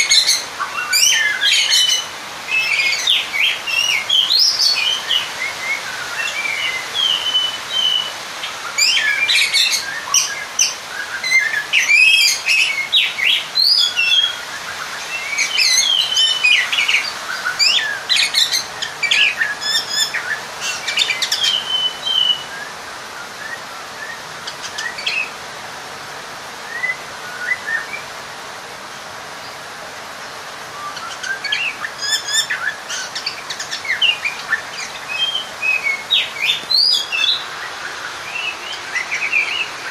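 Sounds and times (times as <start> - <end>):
bird singing varied whistles: 26.7 - 28.0, 30.8 - 37.4.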